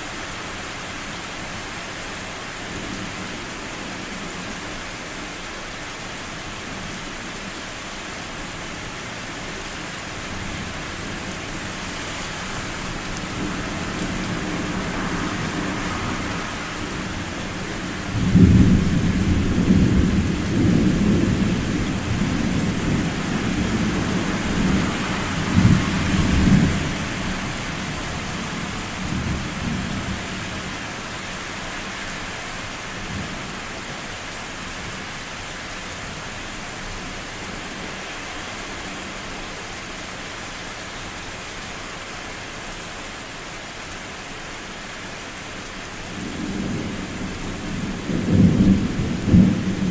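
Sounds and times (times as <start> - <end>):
rain falling: 0.0 - 49.9
thunder rumbling: 46.2 - 49.9.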